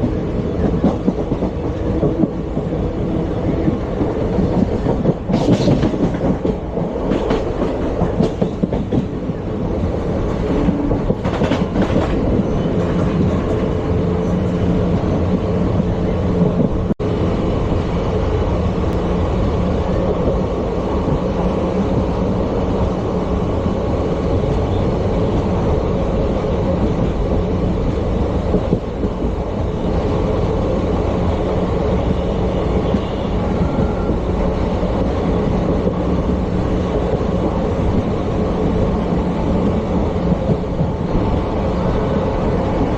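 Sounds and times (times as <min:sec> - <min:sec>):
train wheels rumbling on rail: 0:00.0 - 0:42.9
wheels clacking over rail joints: 0:03.6 - 0:15.4.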